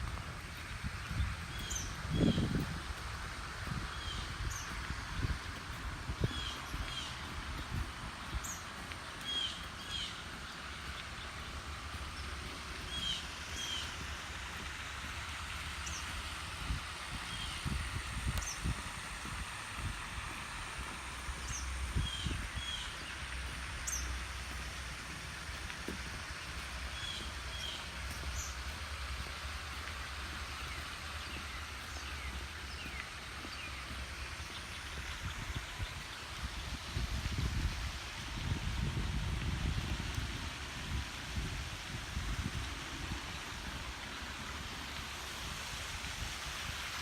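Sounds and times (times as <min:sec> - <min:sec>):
outdoor hiss: 0:00.0 - 0:47.0
small birds chirping: 0:00.4 - 0:02.7, 0:03.7 - 0:14.7, 0:15.6 - 0:18.9, 0:19.8 - 0:36.7.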